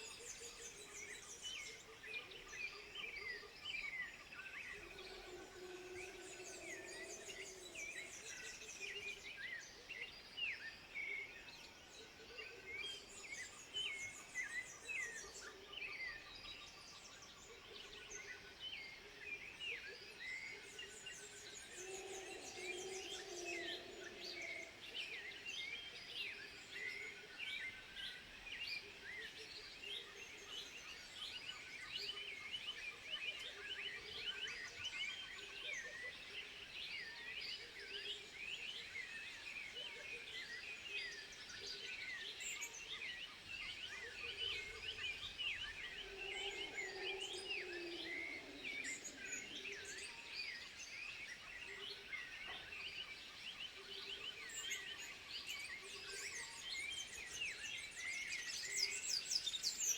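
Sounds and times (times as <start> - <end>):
high chirping animal calls: 45.9 - 49.8
lower longer animal call: 45.9 - 49.8.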